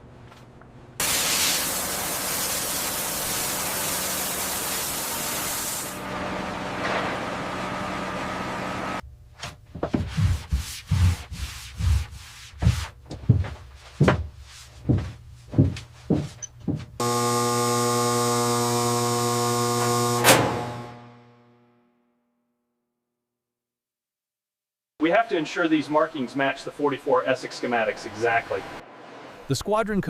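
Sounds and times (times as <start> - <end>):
loud steady hiss: 1.0 - 6.0.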